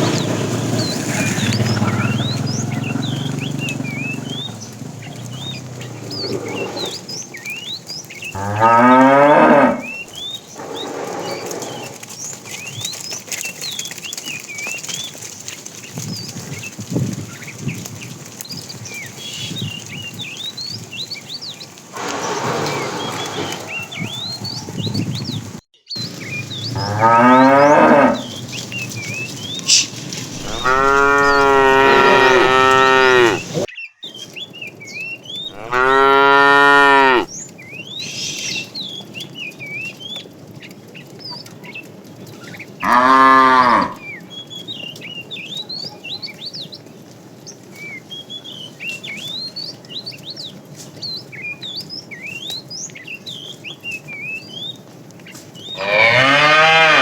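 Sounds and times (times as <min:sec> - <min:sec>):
small birds chirping: 0:00.0 - 0:57.0
cattle mooing: 0:05.8 - 0:07.1, 0:08.4 - 0:12.1, 0:22.0 - 0:24.6, 0:26.8 - 0:28.4, 0:30.3 - 0:33.7, 0:35.5 - 0:37.3, 0:42.8 - 0:44.0, 0:55.8 - 0:57.0.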